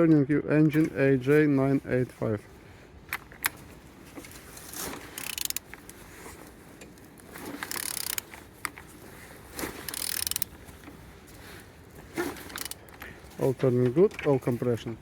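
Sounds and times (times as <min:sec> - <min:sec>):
ratchet wrench clicking: 0:05.2 - 0:05.9, 0:07.6 - 0:08.3, 0:09.8 - 0:10.5, 0:12.4 - 0:13.0.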